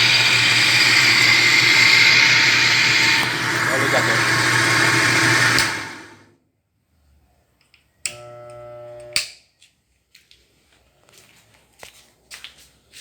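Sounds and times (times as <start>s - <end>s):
electric drill spinning down: 0.0s - 6.3s.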